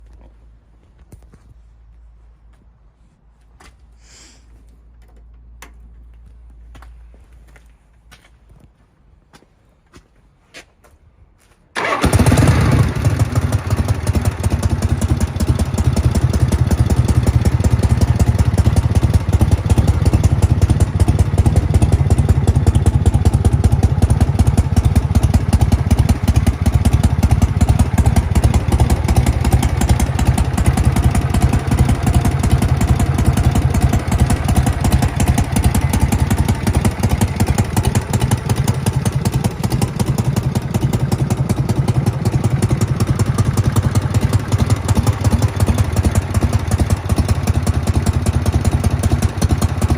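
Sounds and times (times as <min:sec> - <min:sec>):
motorcycle engine starting and running: 0:11.8 - 0:49.9.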